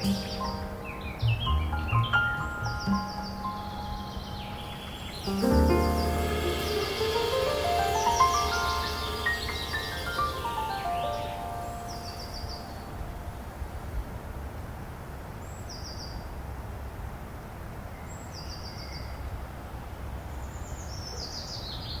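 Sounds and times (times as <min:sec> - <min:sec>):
songbird trilling: 0:00.0 - 0:13.1.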